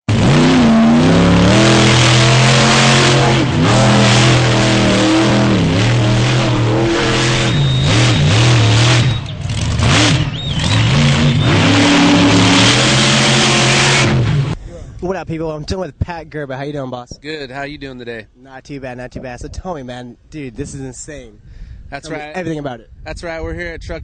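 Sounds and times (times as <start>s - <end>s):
truck engine revving: 0.1s - 14.6s.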